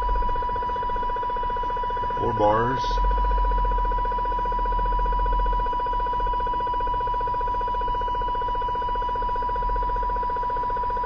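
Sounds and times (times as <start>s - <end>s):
pulsing radio interference whine: 0.0s - 11.0s.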